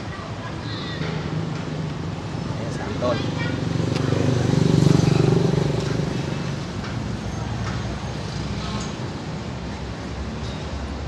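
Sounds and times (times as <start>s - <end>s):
steady engine rumble: 1.2s - 9.8s
vehicle passing by: 2.0s - 7.4s.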